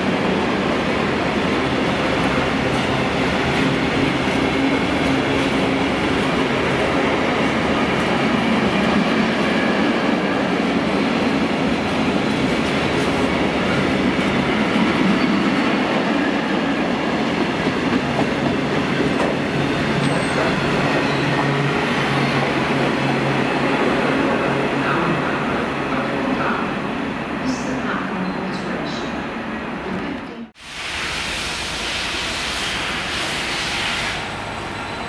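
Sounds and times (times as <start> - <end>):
clickety-clack over rail joints: 17.6 - 21.6.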